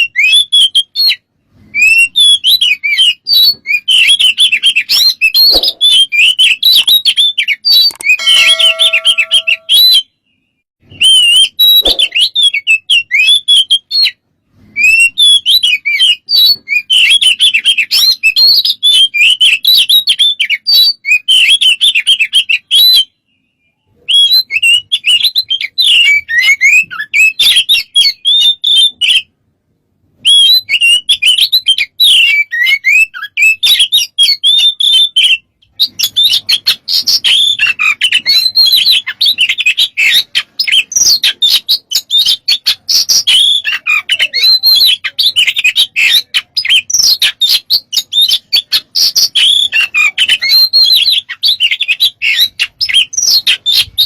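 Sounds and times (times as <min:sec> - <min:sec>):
songbird singing varied song: 0:01.9 - 0:14.2.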